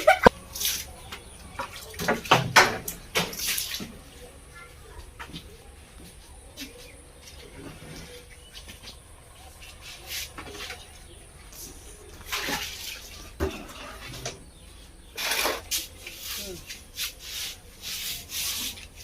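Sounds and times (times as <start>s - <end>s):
running water: 9.5s - 14.4s.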